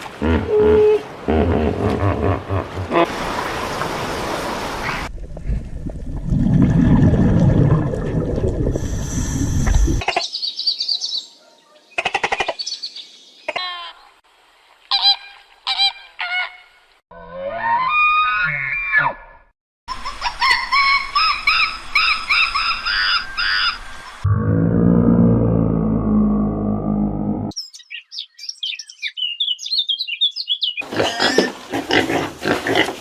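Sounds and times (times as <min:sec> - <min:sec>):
hiss: 0:08.8 - 0:10.0
loud low rumble: 0:24.2 - 0:27.5
bird calls: 0:27.5 - 0:31.3.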